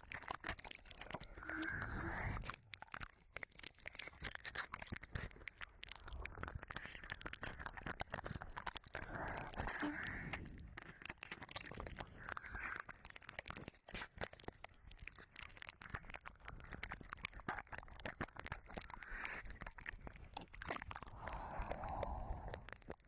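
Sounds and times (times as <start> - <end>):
wet tongue and lip clicks: 0.0 - 23.0
soft breathing: 1.1 - 2.6, 21.1 - 22.9.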